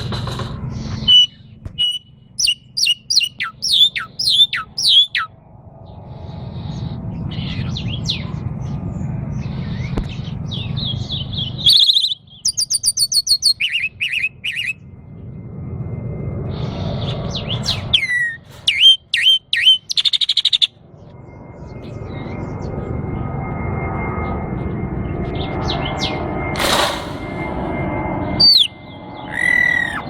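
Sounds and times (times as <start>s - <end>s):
songbirds whistling and chirping: 0.7s - 5.4s, 6.6s - 14.8s, 16.6s - 22.8s, 25.1s - 26.5s, 28.2s - 30.0s.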